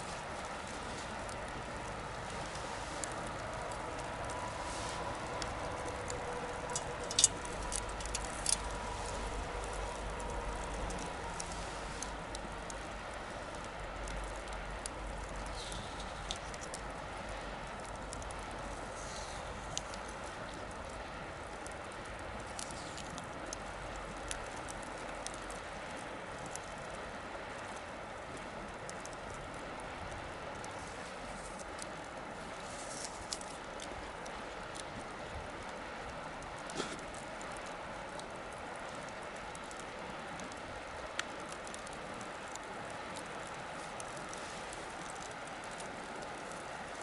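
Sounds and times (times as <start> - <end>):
bonfire crackling and popping: 0.0 - 47.0
steady fire hiss: 0.0 - 47.0.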